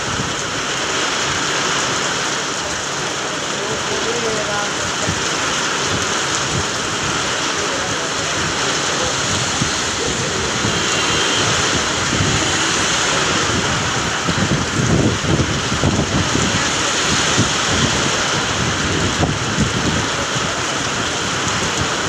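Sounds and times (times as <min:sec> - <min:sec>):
heavy rain pouring: 0:00.0 - 0:22.0
low rumbling on microphone: 0:05.0 - 0:22.0.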